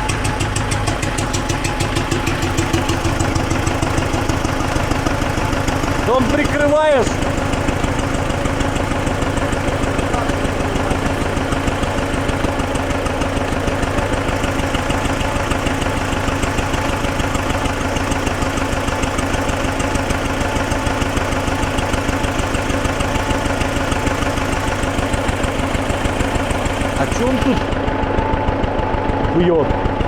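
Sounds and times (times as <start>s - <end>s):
diesel engine idling: 0.0s - 30.0s
engine knock: 0.0s - 30.0s.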